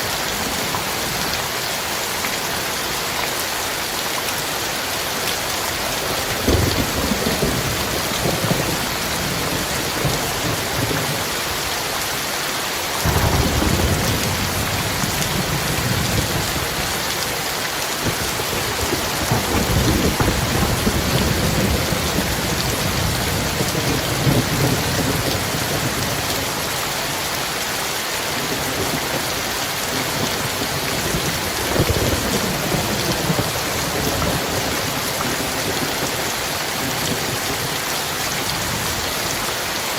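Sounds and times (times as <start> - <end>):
heavy rain: 0.0 - 39.9
thunder rumbling: 5.7 - 11.4, 13.0 - 26.7, 29.9 - 37.7.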